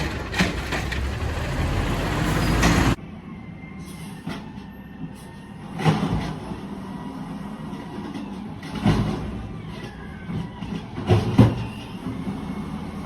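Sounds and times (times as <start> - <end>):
garbage truck engine running: 0.0 - 3.0.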